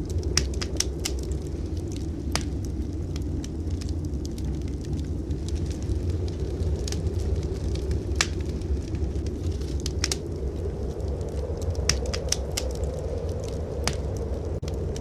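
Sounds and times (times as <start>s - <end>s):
low rumble of blizzard wind: 0.0s - 15.0s
wood fire crackling and popping: 0.0s - 15.0s.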